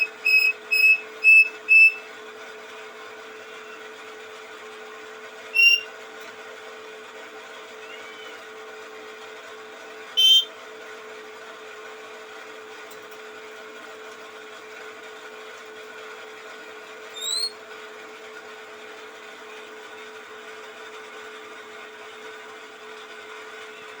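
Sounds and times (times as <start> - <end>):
machine-like hum: 0.0 - 4.2, 5.4 - 6.3, 10.1 - 10.6
songbird chirping: 17.2 - 17.6.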